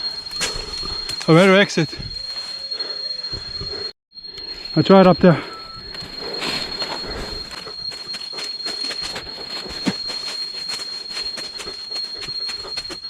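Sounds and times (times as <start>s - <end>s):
high-pitched insect whine: 0.0s - 13.0s
footsteps through undergrowth: 5.9s - 13.0s.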